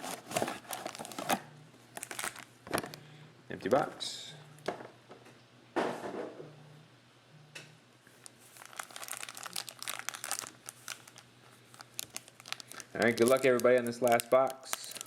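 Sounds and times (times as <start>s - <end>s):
plastic wrapping tearing: 0.0s - 2.9s, 8.5s - 15.0s
plastic wrapping crackling: 0.0s - 3.0s, 8.2s - 15.0s.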